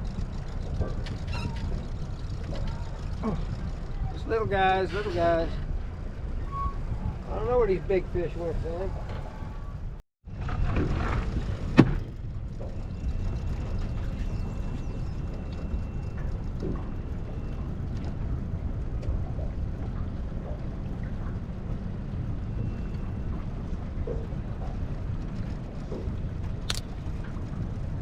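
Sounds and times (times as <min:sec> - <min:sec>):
boat motor running: 0:00.0 - 0:28.0
sharp click: 0:26.6 - 0:26.9.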